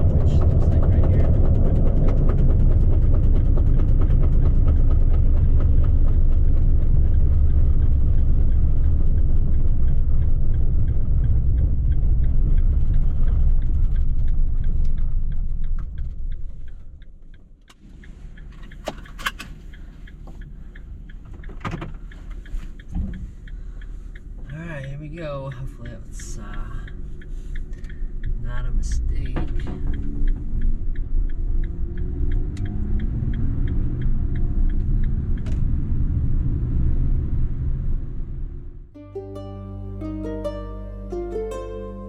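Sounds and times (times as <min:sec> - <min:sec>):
sharp clicks and knocks: 0:00.0 - 0:17.8, 0:18.4 - 0:20.5, 0:21.1 - 0:23.6
van driving with snow chains: 0:00.0 - 0:38.6.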